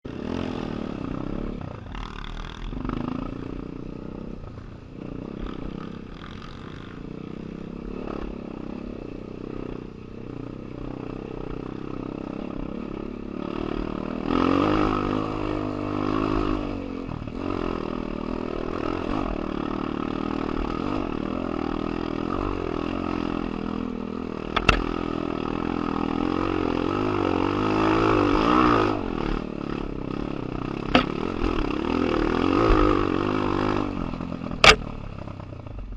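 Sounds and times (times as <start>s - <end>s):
motorcycle engine revving: 0.1s - 35.9s
sharp knock: 30.9s - 31.2s, 34.6s - 34.9s.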